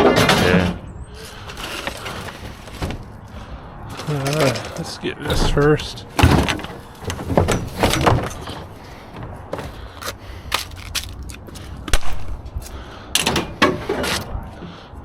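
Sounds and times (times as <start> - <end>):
scrap metal clanking: 0.0 - 8.8
rattling knocks: 4.4 - 9.7.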